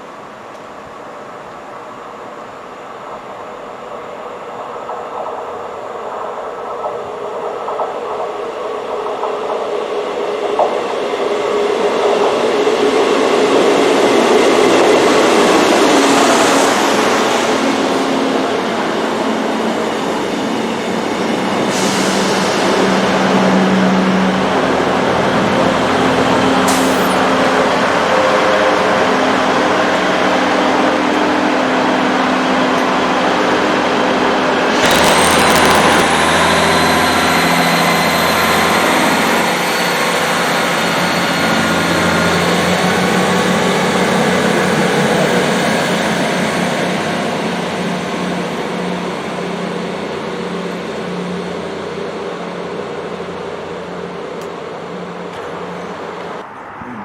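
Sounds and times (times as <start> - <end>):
train engine hum: 0.0 - 57.0
loud rushing noise: 13.8 - 38.7.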